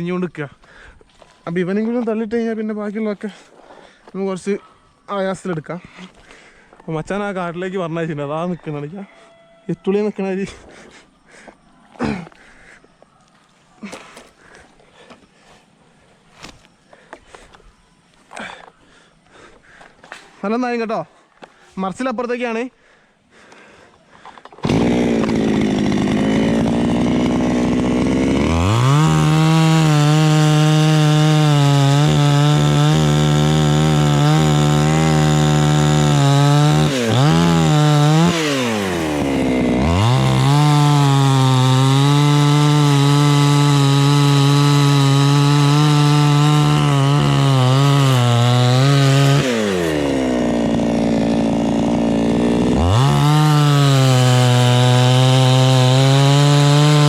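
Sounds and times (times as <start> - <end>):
chainsaw sawing through wood: 24.2 - 57.0.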